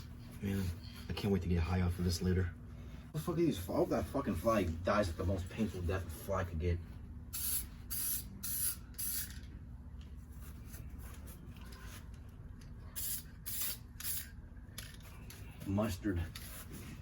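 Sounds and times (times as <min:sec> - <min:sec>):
spray can hissing bursts: 0:07.3 - 0:09.3, 0:13.0 - 0:14.4.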